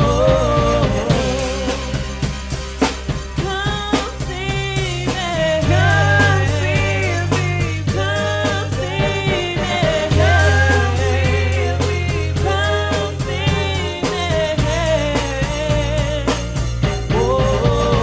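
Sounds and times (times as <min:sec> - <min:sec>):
person singing lead vocal: 0:00.0 - 0:02.4, 0:03.4 - 0:18.0
drum beat: 0:00.0 - 0:18.0
long held bass notes: 0:00.0 - 0:18.0.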